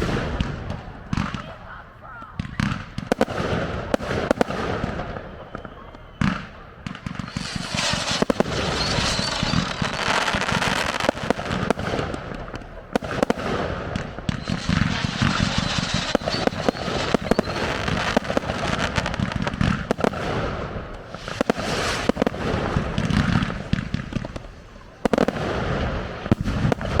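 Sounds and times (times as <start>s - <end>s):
low booming: 0.0s - 1.5s, 6.8s - 24.3s
fireworks bangs: 0.0s - 27.0s
fireworks crackling: 0.0s - 27.0s.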